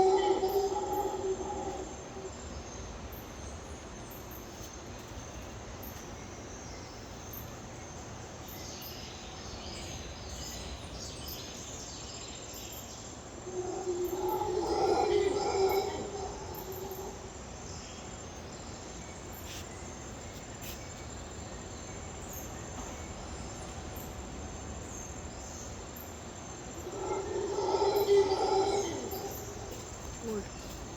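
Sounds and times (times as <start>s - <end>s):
howler monkeys roaring: 0.0s - 2.5s, 13.4s - 17.8s, 26.7s - 30.6s
insects chorus: 0.0s - 30.9s.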